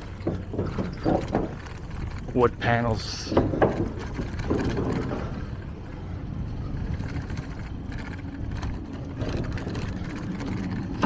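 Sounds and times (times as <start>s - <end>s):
faint knocks from bumps: 0.0s - 2.2s, 3.3s - 5.7s
bicycle tyres on wooden boards: 0.0s - 11.0s
wind on microphone: 0.0s - 11.0s.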